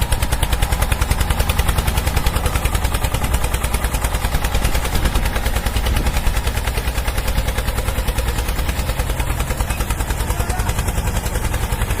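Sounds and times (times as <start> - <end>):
vehicle motor chugging: 0.0 - 12.0.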